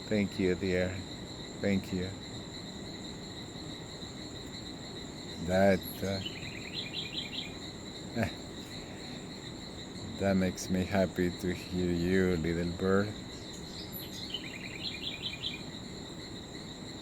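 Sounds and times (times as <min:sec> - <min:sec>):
crickets and insects droning: 0:00.0 - 0:17.0
bird chirping: 0:04.4 - 0:15.9.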